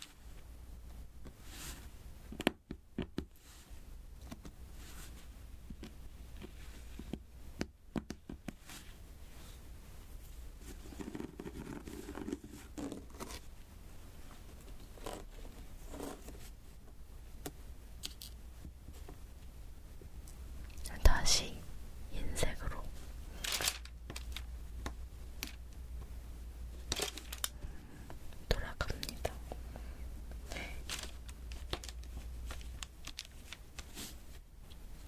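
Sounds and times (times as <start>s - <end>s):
sticky scraping and rustling: 30.5s - 34.8s.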